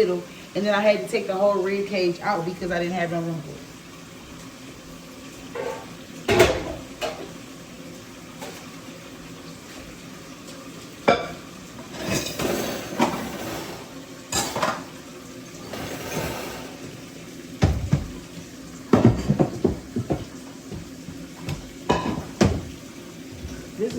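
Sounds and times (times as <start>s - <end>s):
pots and pans clattering: 5.4s - 7.4s, 8.3s - 8.8s, 10.9s - 23.9s.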